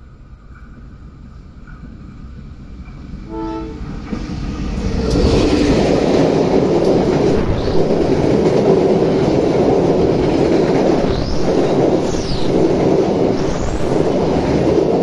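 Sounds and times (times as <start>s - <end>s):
diesel train passing: 0.0s - 15.0s
train horn blast: 3.3s - 4.2s.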